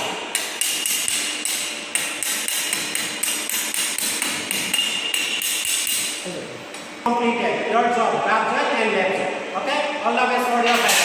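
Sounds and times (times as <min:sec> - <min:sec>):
hammer tapping on metal: 0:00.3 - 0:06.1.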